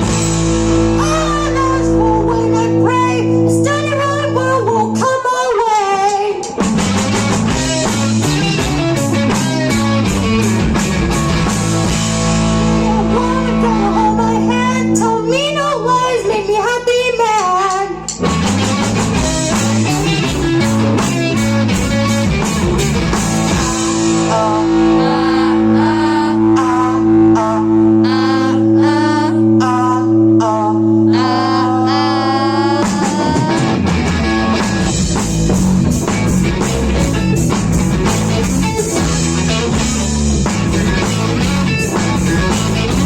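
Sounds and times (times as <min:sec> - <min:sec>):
rock band playing: 0:00.0 - 0:43.0
lead vocal singing: 0:19.2 - 0:34.6.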